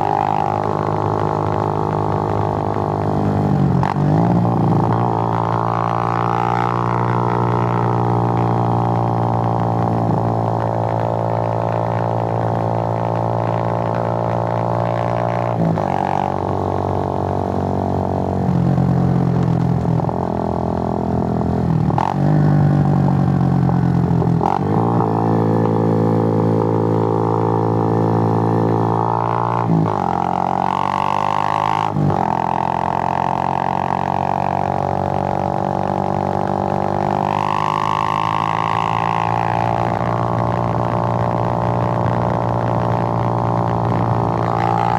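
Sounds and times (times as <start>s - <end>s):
motorcycle engine droning: 0.0s - 44.9s.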